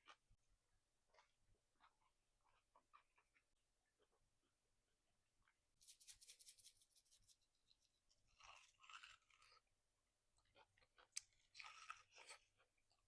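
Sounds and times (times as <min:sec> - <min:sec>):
wet chewing: 0:08.1 - 0:09.7, 0:10.4 - 0:13.0
crisp eating crunches: 0:08.2 - 0:09.6, 0:10.5 - 0:12.8.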